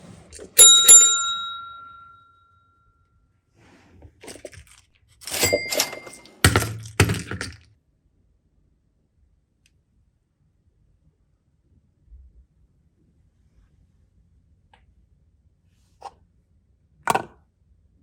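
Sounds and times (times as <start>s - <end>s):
ringing tone: 0.6s - 2.4s
clatter of hard objects: 4.2s - 7.7s.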